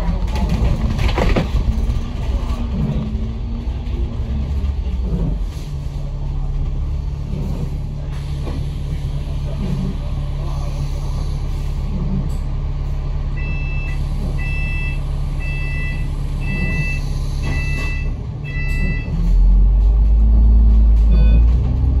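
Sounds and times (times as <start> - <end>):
bus engine running: 0.0 - 22.0
electronic warning beeps: 13.4 - 19.2, 21.1 - 21.6.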